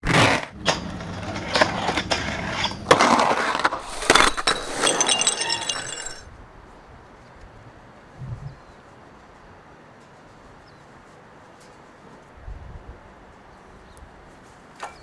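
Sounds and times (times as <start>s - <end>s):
skateboard rolling noise: 0.0s - 6.2s
skateboard clacks and impacts: 0.1s - 4.2s.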